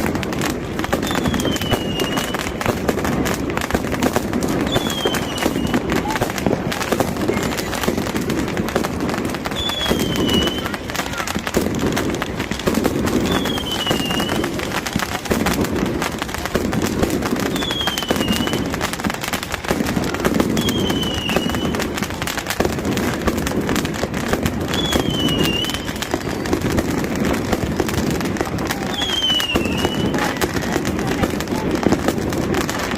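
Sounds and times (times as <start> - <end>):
crowd noise: 0.0 - 32.9
fireworks crackling and popping: 0.0 - 32.9
falling whistle: 1.0 - 2.4, 4.7 - 5.9, 9.5 - 10.7, 17.5 - 18.6, 20.6 - 21.8, 24.7 - 26.0, 28.9 - 30.1.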